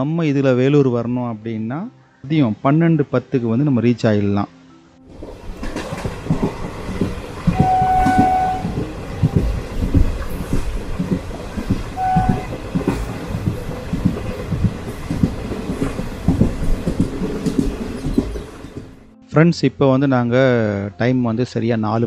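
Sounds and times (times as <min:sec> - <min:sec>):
train wheels clattering over rails: 0:05.1 - 0:19.1
train horn toots: 0:07.5 - 0:09.1, 0:11.9 - 0:13.0.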